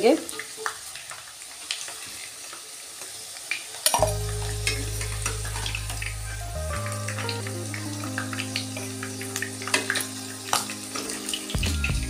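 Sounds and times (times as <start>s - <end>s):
potatoes sizzling in oil: 0.0s - 12.0s
low background music: 4.0s - 12.0s.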